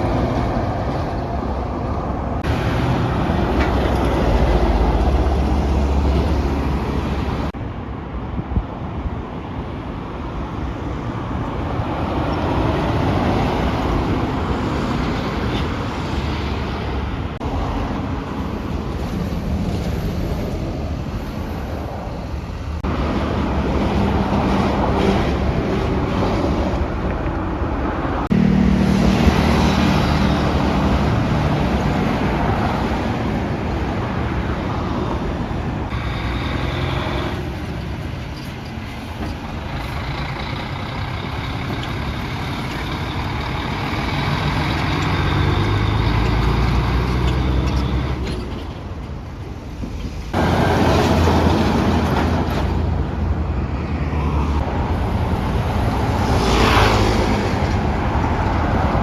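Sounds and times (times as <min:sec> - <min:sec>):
heavy trucks engine rumble: 0:00.0 - 0:59.0
tyre and traffic noise: 0:00.0 - 0:59.0.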